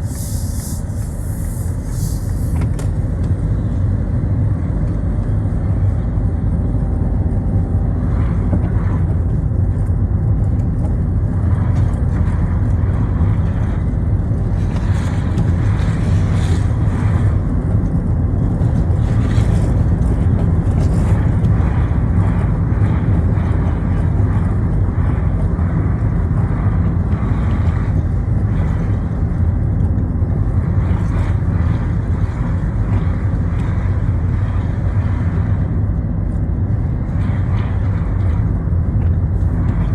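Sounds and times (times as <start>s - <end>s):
tyres hissing on wet road: 0.0s - 3.1s
car driving on wet road: 0.0s - 39.9s.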